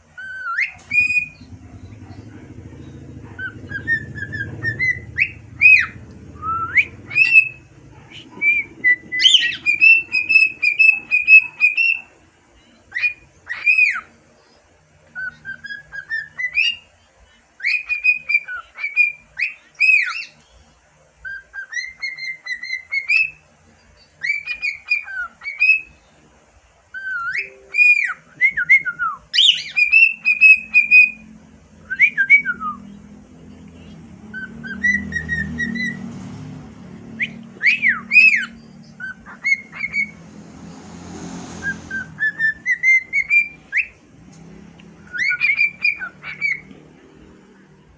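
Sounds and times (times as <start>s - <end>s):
cockatiel whistling: 0.2s - 2.2s, 3.2s - 12.1s, 12.9s - 14.1s, 15.1s - 16.9s, 17.6s - 20.4s, 21.2s - 23.4s, 24.2s - 25.9s, 26.9s - 31.3s, 31.9s - 33.0s, 34.3s - 36.1s, 37.1s - 40.2s, 41.6s - 44.0s, 45.0s - 46.7s.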